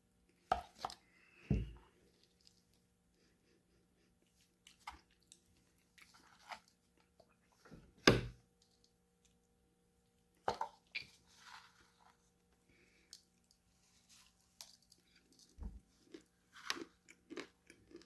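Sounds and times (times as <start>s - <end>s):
soft crackly chewing: 0.3s - 7.7s, 8.6s - 18.0s
crunching bite of snack: 14.6s - 18.0s.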